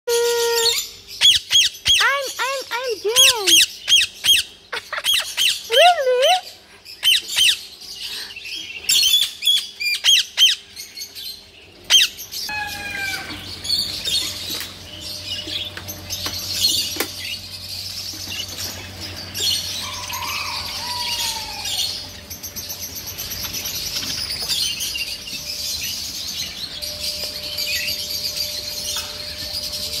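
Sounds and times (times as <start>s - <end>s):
parrot squawking: 0.1s - 7.6s, 11.9s - 13.6s
high-pitched background noise: 9.3s - 30.0s.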